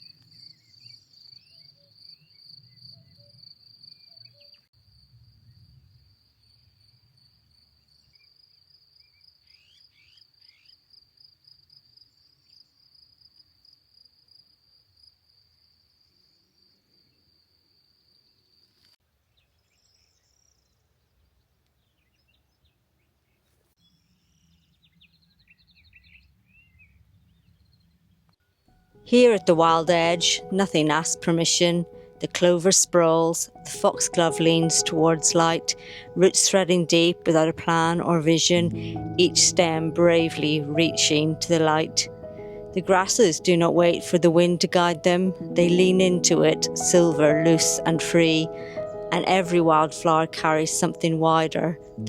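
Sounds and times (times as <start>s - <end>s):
cricket chirping: 0.0s - 19.0s
bird chirps: 23.2s - 28.0s.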